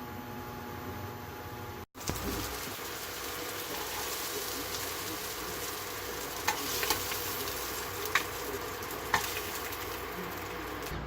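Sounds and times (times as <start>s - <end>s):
meat sizzling in a pan: 2.0s - 10.9s
utensil clicking against pan: 6.4s - 7.4s.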